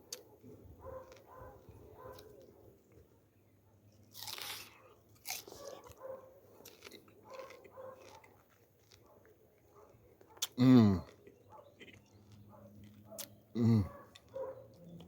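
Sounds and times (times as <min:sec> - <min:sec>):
chewing: 0:00.0 - 0:03.1, 0:03.9 - 0:15.0
crunchy bites into fruit: 0:04.1 - 0:09.0, 0:10.4 - 0:14.4.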